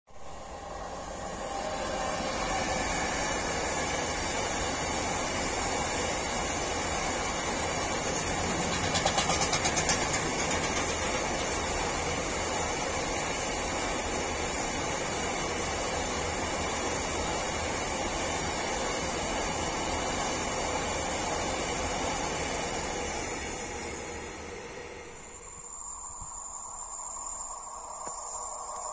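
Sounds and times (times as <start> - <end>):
freight train rumbling on rails: 0.1 - 28.9
rapid wheel clatter: 7.8 - 12.7.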